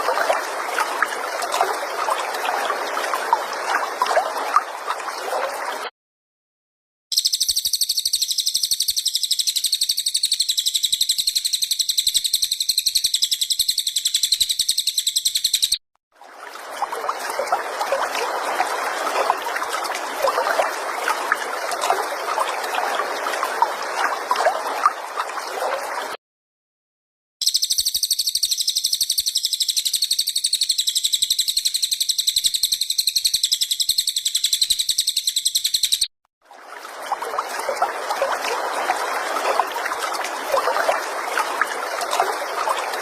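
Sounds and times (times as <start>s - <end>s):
bird fast chattering calls: 7.1s - 15.8s
bird high pulsing trill: 7.1s - 15.8s, 27.4s - 36.1s.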